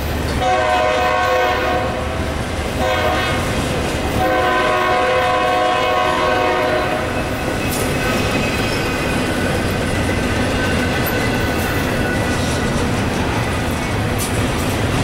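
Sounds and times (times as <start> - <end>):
train wheel-on-rail rumble: 0.0 - 15.0
locomotive horn chord: 0.4 - 3.5, 4.2 - 7.1.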